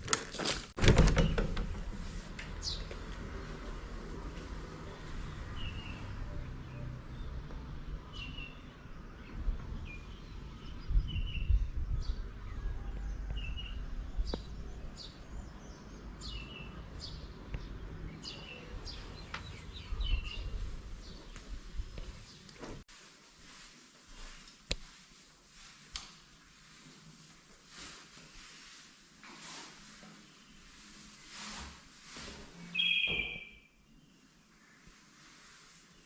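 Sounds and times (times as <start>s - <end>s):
small birds chirping: 13.4s - 22.6s, 32.8s - 34.9s.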